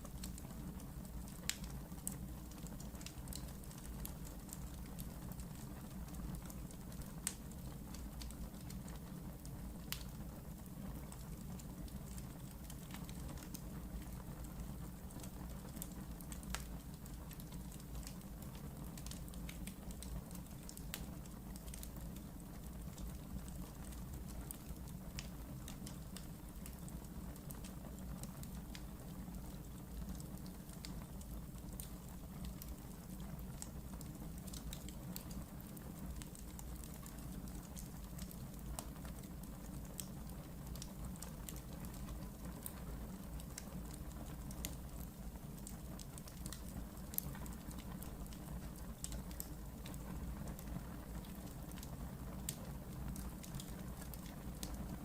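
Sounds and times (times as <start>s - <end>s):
wood crackling and popping: 0.0s - 55.0s
wood fire burning: 0.0s - 55.0s.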